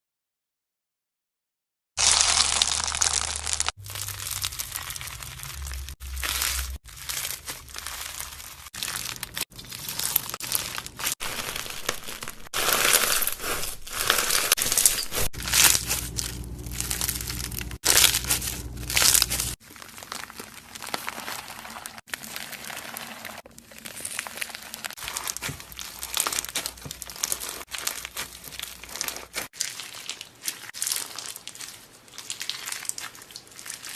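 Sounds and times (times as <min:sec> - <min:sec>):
slime crackling and crunching: 0:02.0 - 0:33.9.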